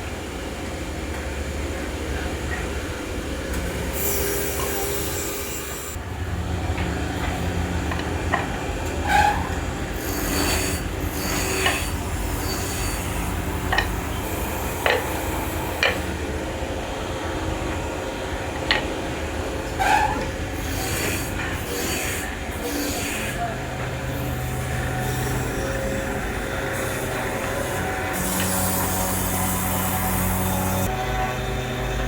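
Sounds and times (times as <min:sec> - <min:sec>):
woodworking machinery hum: 0:00.0 - 0:32.0
sharp clicks and knocks: 0:14.8 - 0:16.2, 0:18.6 - 0:19.0.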